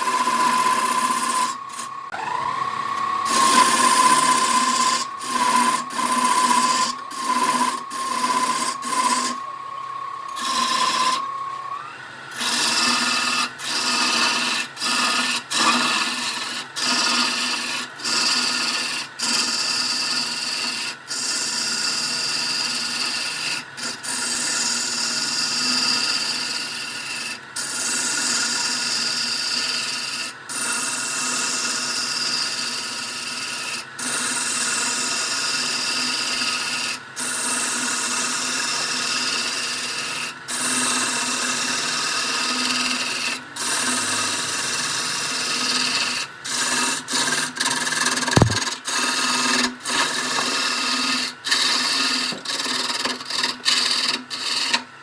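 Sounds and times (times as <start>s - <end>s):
tool scraping spinning wood: 0.0s - 27.3s, 40.6s - 54.8s
wood lathe running: 0.0s - 30.6s, 31.4s - 34.2s, 37.8s - 48.6s, 49.9s - 54.8s.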